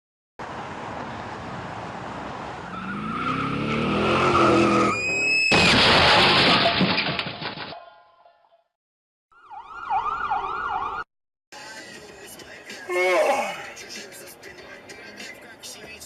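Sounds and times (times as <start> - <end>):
car engine revving: 2.7 - 5.0
loud crash: 5.4 - 7.8.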